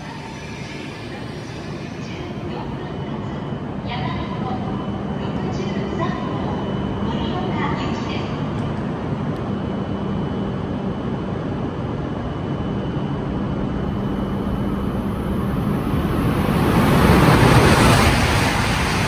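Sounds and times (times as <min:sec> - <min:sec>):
approaching high-speed train rush: 0:00.0 - 0:19.0
steady low hum: 0:09.2 - 0:19.0.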